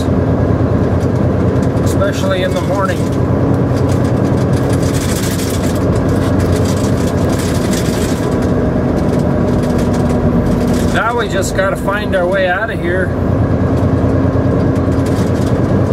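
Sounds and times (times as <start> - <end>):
diesel truck engine running: 0.0 - 15.9.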